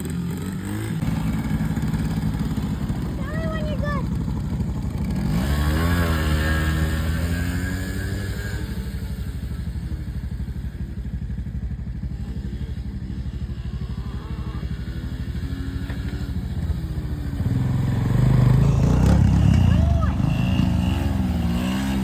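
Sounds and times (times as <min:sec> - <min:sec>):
pit bike engine idling and revving: 0:00.0 - 0:22.0.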